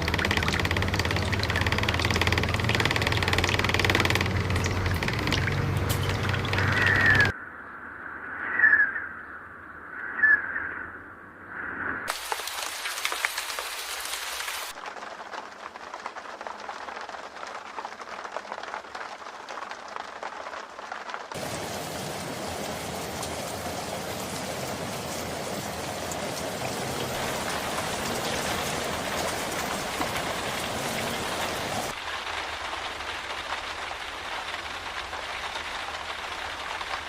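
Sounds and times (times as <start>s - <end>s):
heavy rain: 0.0s - 7.3s, 12.1s - 37.0s.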